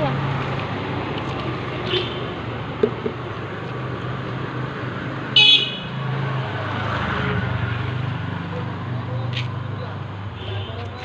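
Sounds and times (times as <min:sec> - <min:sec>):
traffic engine hum: 0:00.0 - 0:11.0
vehicle horn toot: 0:05.4 - 0:05.8, 0:10.4 - 0:10.8.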